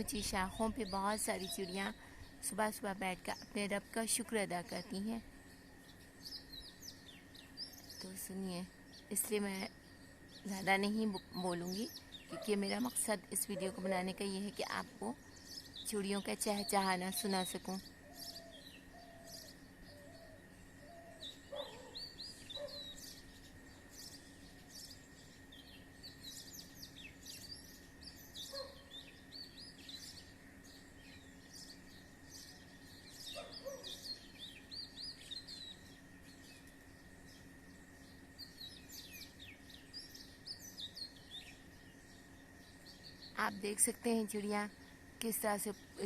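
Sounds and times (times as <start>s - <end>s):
faint steady hum: 0.0s - 46.0s
small birds chirping and twittering: 0.0s - 46.0s
lower bird call: 14.7s - 41.9s.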